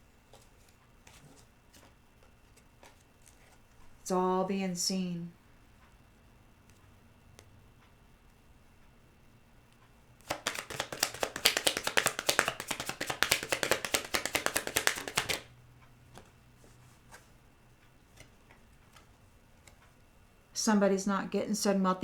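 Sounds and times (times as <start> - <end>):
cards being shuffled: 0.3 - 3.9, 10.2 - 15.5.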